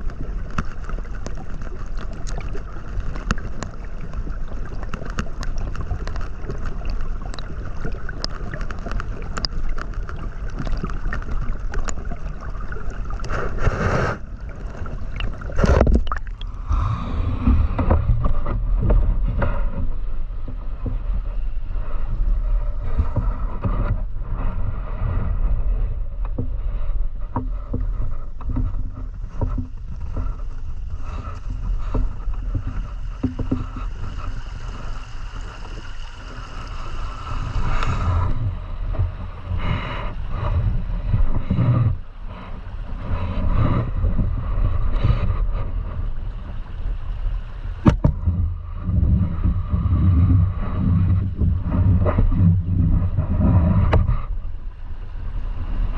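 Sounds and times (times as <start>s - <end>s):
small knocks: 47.8s - 48.3s.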